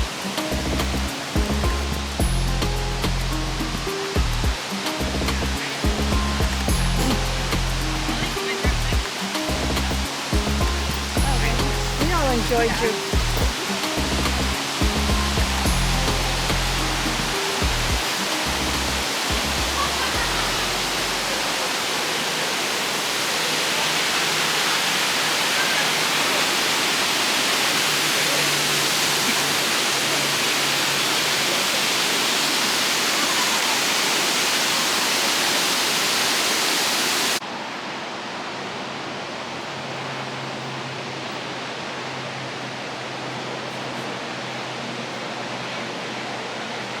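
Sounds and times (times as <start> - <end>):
waterfall roaring: 0.0 - 47.0.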